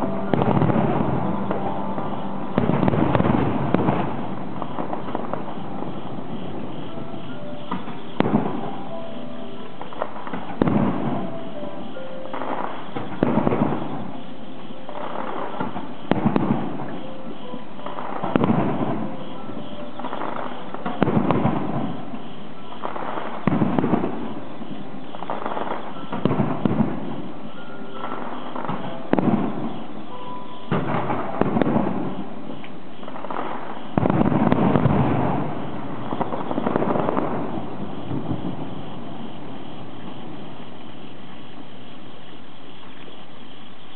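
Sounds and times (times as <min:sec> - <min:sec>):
firework crackle: 0:00.0 - 0:43.9
firework shells booming: 0:00.0 - 0:43.9.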